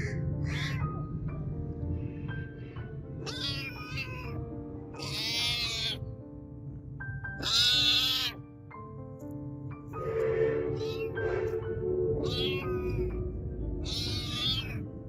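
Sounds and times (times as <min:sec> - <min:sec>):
cat meowing: 0:00.0 - 0:01.1, 0:03.2 - 0:06.1, 0:07.4 - 0:08.4, 0:10.8 - 0:11.2, 0:12.2 - 0:14.9
background music: 0:00.0 - 0:15.0.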